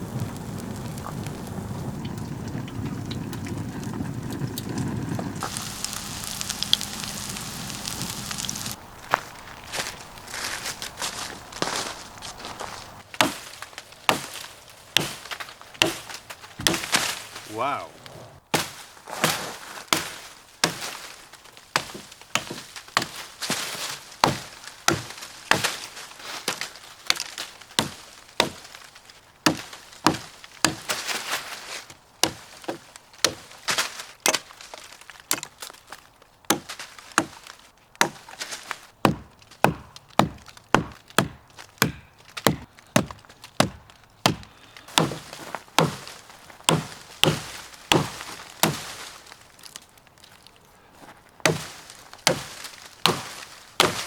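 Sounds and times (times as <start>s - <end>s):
axe chopping wood: 13.1s - 17.6s, 18.5s - 31.4s, 32.2s - 35.8s, 36.5s - 49.8s, 51.4s - 54.0s.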